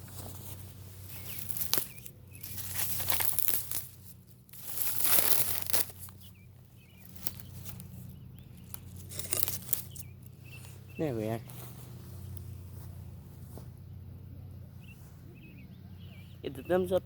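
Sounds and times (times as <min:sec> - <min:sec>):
rustling crinkling handling noise: 0:00.0 - 0:06.3, 0:07.0 - 0:10.8.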